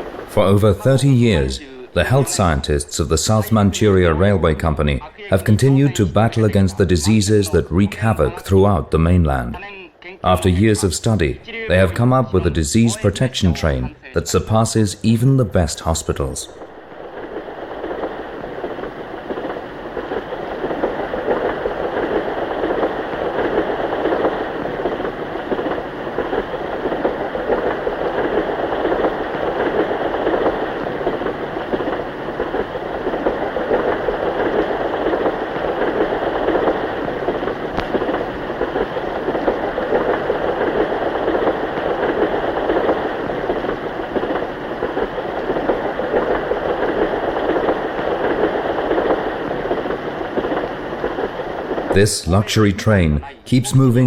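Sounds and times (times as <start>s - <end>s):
moving train rumbling: 15.4s - 52.0s.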